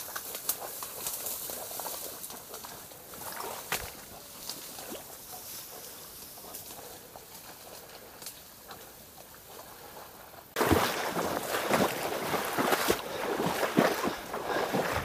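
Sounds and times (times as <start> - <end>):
splashing through shallow water: 2.6 - 4.2, 10.6 - 15.0.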